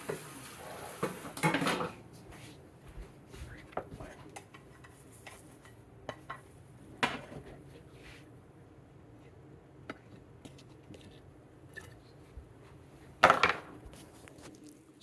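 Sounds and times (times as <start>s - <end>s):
cookware and utensils clinking: 1.0s - 2.0s.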